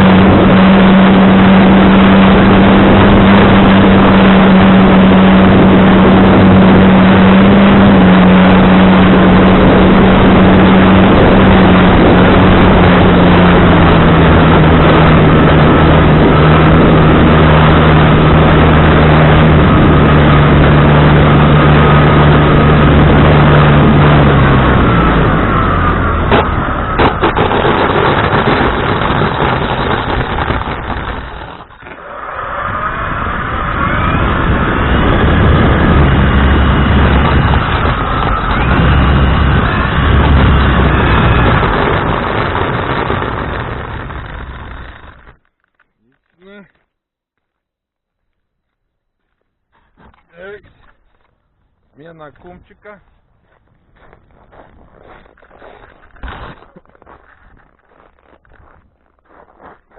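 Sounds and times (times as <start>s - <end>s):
wind buffeting microphone: 0.0s - 32.0s, 32.7s - 45.4s
low hum sinking in pitch: 29.7s - 45.2s.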